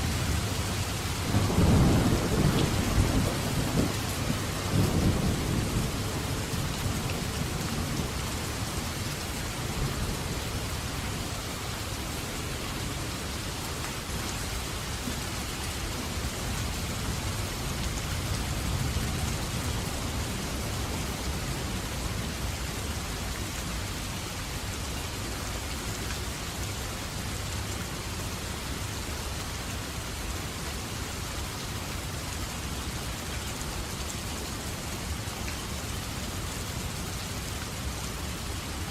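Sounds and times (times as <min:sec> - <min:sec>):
steady rain falling: 0:00.0 - 0:38.9
thunder rumble: 0:01.3 - 0:08.1.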